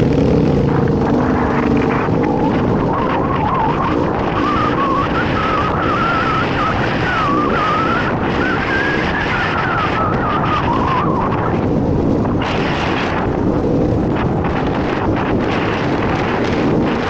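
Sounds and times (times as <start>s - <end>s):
dirt bike engine running: 0.0s - 17.0s
wind rush on microphone: 0.0s - 17.0s.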